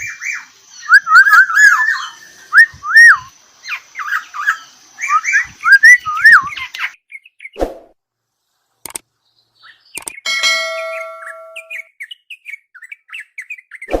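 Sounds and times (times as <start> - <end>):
bird singing fluting whistles: 0.0 - 3.3, 4.0 - 6.6, 10.7 - 14.0
sharp clicks: 8.8 - 9.1, 10.0 - 10.2
metallic ring: 10.3 - 11.8.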